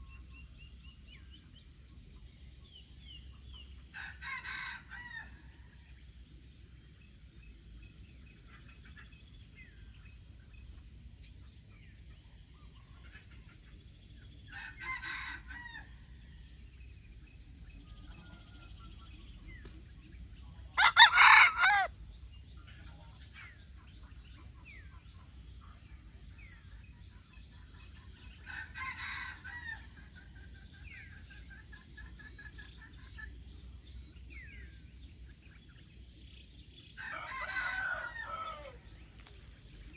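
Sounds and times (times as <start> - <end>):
high insect drone: 16.7 - 23.2
distant roosters crowing: 20.8 - 21.9, 37.0 - 38.9
rooster crowing: 20.8 - 21.9, 37.0 - 38.9.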